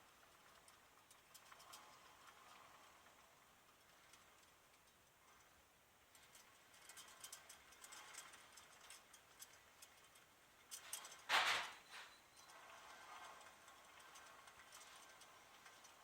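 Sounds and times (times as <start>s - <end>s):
wheel bearing clicking: 6.0s - 16.0s.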